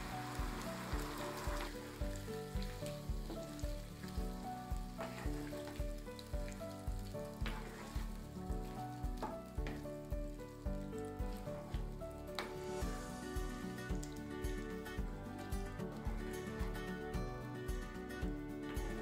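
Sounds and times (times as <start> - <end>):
chicken sizzling in a pan: 0.0 - 16.8
background music with a beat: 0.0 - 19.0
spatula scraping a pan: 5.0 - 5.8, 7.3 - 8.8.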